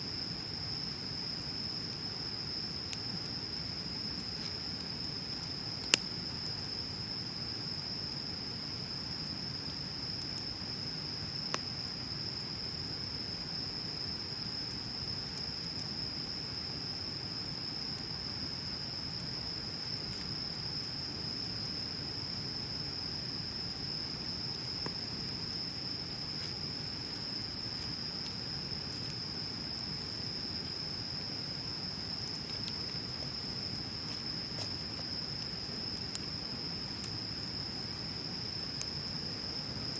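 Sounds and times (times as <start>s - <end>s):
bonfire burning and crackling: 0.0s - 39.9s
fire popping: 0.3s - 7.1s, 17.8s - 39.9s.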